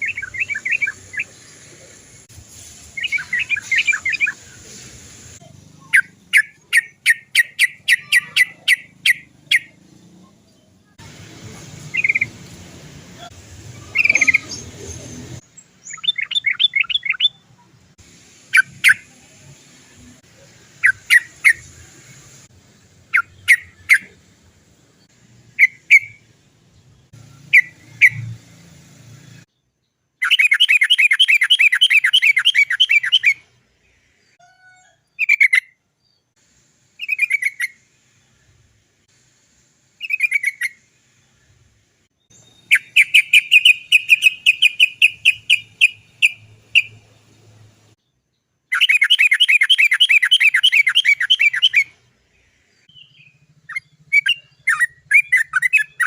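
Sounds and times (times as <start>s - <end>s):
bird calling in quick notes: 5.8s - 9.8s, 13.2s - 14.9s, 42.4s - 47.0s.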